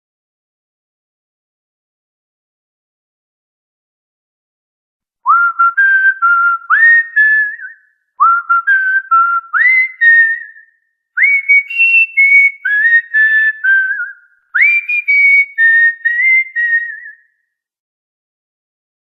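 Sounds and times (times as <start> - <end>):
whistled tune: 5.2 - 17.5.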